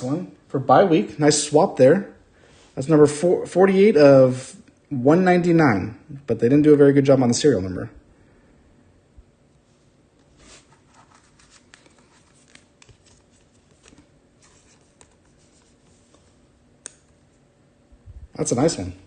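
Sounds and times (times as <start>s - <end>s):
trading cards rustling: 10.2s - 17.4s.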